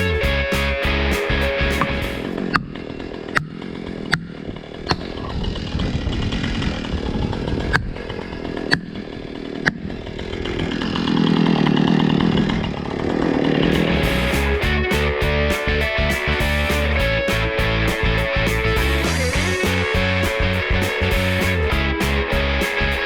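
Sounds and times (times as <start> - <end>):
chainsaw cutting wood: 1.8 - 7.1, 8.2 - 14.3.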